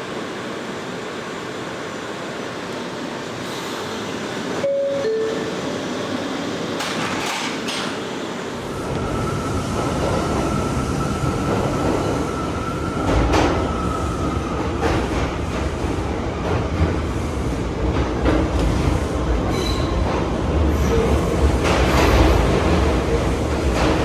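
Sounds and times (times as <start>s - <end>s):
high train whine: 0.0s - 24.0s
subway train rail noise: 0.0s - 24.0s
wheels clacking over rail joints: 6.8s - 8.1s.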